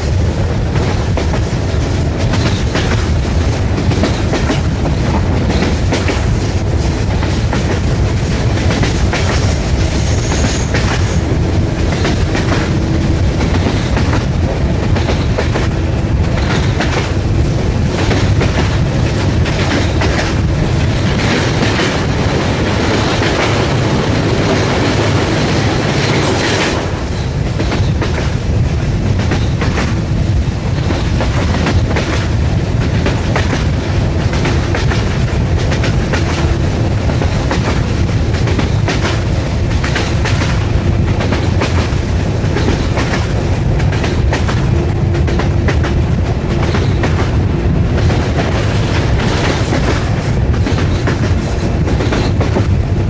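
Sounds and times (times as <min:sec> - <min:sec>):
train rumbling: 0:00.0 - 0:53.0
wheels clicking over rail joints: 0:07.0 - 0:28.4.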